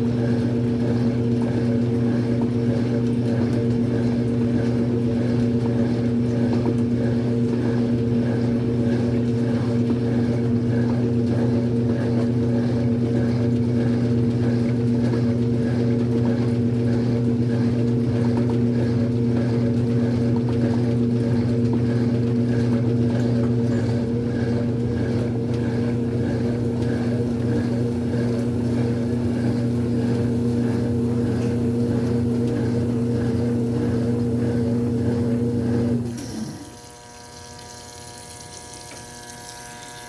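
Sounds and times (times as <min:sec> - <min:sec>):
washing machine motor hum: 0:00.0 - 0:40.0
motor winding down: 0:34.6 - 0:40.0.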